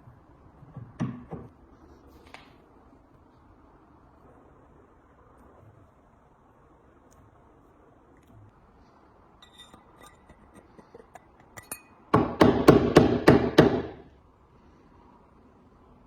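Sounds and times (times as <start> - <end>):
hammer clinks: 9.4 - 12.0.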